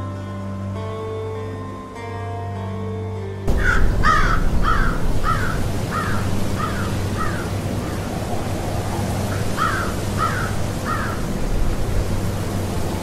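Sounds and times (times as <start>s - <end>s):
crows cawing: 3.5s - 11.4s.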